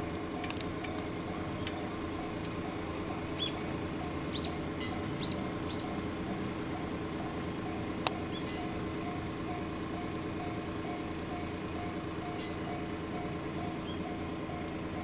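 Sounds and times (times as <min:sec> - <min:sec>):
steady low hum: 0:00.0 - 0:15.0
small bird chirping: 0:03.4 - 0:03.7, 0:04.3 - 0:06.0.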